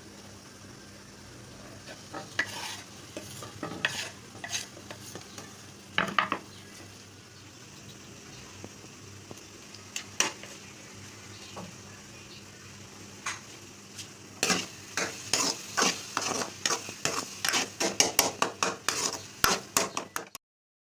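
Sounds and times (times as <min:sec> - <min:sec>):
food sizzling in a pan: 0:00.0 - 0:20.3
spatula scraping a pan: 0:01.6 - 0:05.6, 0:10.0 - 0:10.6, 0:13.9 - 0:20.3.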